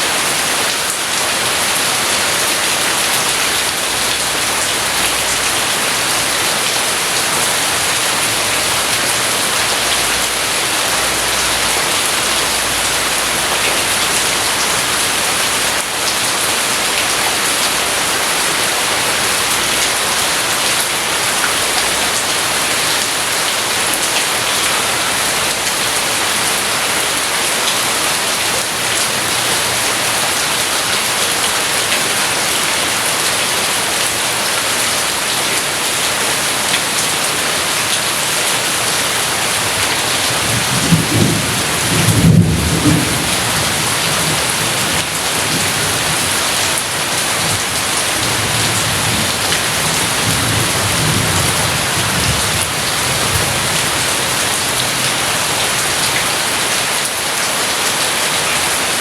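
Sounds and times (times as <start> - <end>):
heavy rainfall: 0.0 - 59.0
low rumble of thunder: 40.4 - 44.6.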